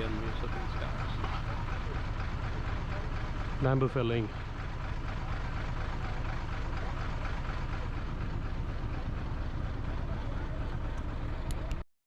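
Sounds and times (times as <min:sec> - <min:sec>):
motorcycle engine rumble: 0:00.0 - 0:01.8
road and wind noise: 0:00.0 - 0:02.0.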